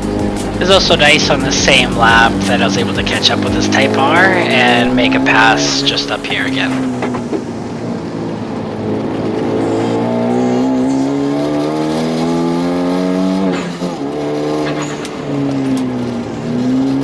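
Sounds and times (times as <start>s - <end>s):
car engine revving at full throttle: 0.0s - 17.0s
gear upshift: 0.0s - 17.0s.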